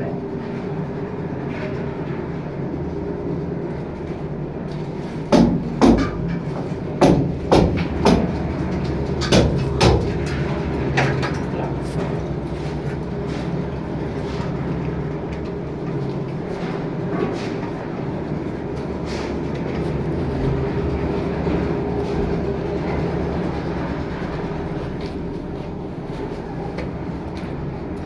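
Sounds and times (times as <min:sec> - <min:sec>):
steady mechanical hum: 0:00.0 - 0:28.0
sharp knocks: 0:05.3 - 0:11.3.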